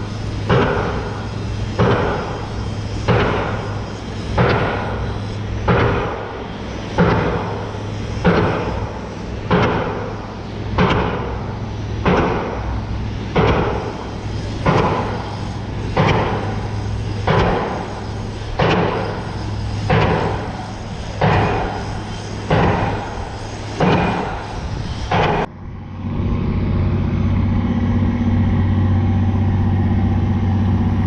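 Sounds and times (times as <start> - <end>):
low hum: 0.0 - 31.0
heavy banging: 7.0 - 25.5.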